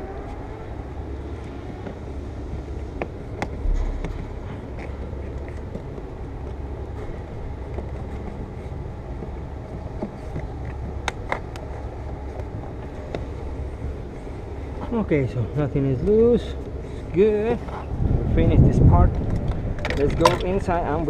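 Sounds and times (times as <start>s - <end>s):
low rumble: 2.7s - 7.6s
car parts clicking and knocking: 2.9s - 8.4s, 9.1s - 13.3s, 19.1s - 21.0s.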